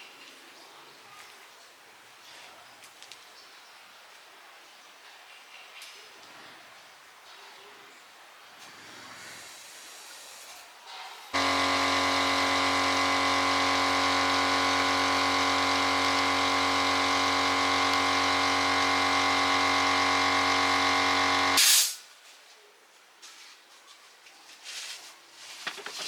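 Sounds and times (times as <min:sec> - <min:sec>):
angle grinder motor whine: 0:11.4 - 0:21.6.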